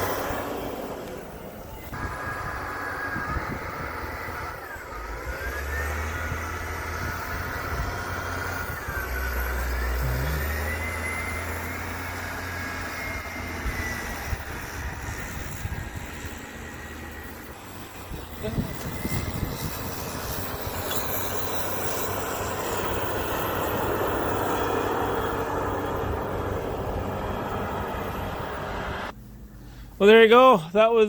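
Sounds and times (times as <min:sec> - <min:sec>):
high wavering whine: 0:00.0 - 0:29.8
truck engine rumble: 0:00.0 - 0:30.8.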